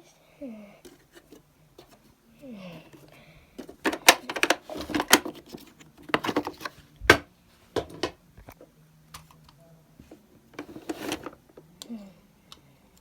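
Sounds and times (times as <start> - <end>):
plastic parts clicking and rattling: 2.9 - 7.2, 7.8 - 8.2, 10.5 - 11.4.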